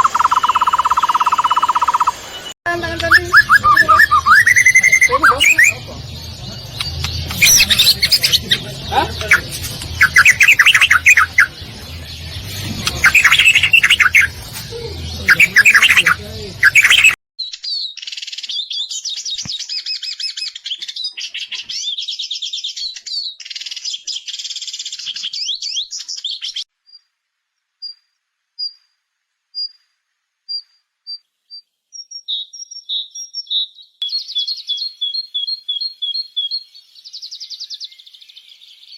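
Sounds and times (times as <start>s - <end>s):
rapid bird twittering: 0.0s - 27.0s
songbirds singing: 0.0s - 27.1s, 30.5s - 38.9s.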